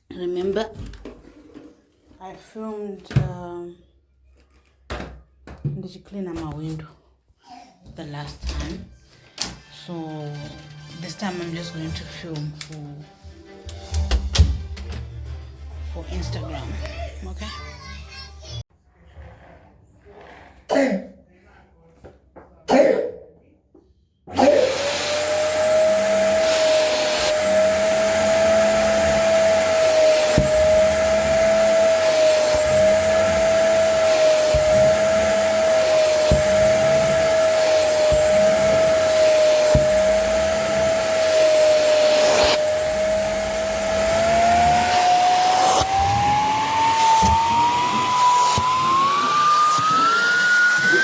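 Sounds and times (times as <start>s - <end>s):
electric motor whining: 24.3s - 51.0s.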